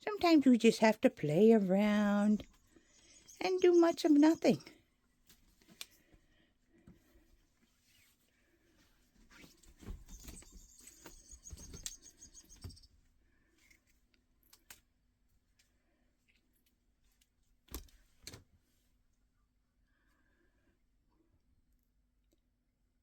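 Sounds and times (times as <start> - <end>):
cat toy electronic chirps: 2.9 - 4.7, 10.0 - 12.9.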